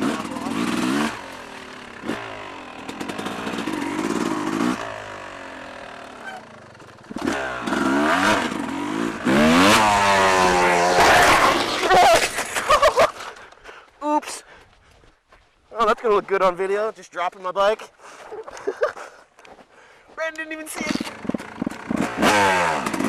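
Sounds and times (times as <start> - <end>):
dirt bike engine revving: 0.0 - 12.7, 20.8 - 23.0.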